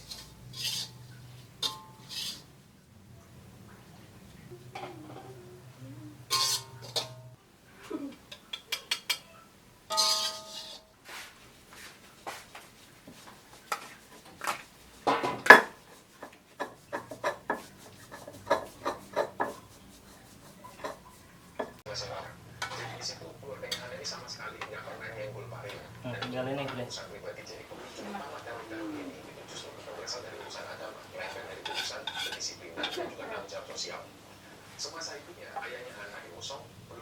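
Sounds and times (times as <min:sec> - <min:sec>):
dishes and metal utensils clinking: 0:00.0 - 0:02.5, 0:04.3 - 0:05.4, 0:06.2 - 0:07.4, 0:08.2 - 0:11.0, 0:13.7 - 0:27.1, 0:29.5 - 0:33.9.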